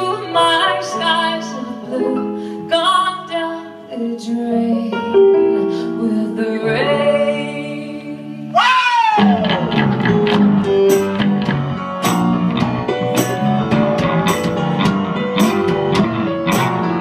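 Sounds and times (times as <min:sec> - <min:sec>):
bass notes: 0:09.2 - 0:17.0
strummed guitar: 0:09.2 - 0:17.0
sharp percussion hits: 0:10.3 - 0:17.0.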